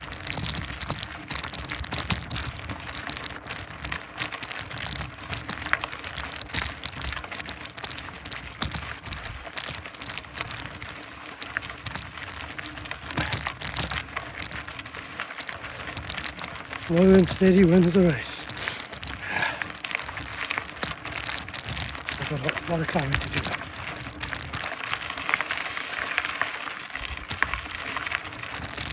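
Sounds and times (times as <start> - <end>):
bike tyres crunching on gravel: 0.0 - 28.9.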